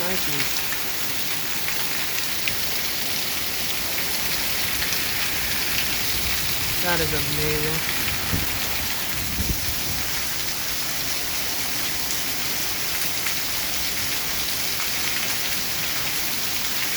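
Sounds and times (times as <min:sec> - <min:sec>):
torrential rain hissing: 0:00.0 - 0:16.9.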